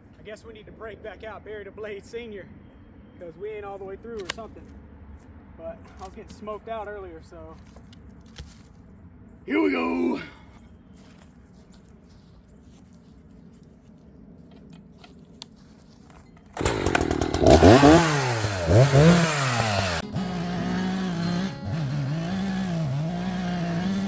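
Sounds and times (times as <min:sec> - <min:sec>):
chainsaw starting and revving: 0:16.6 - 0:24.0.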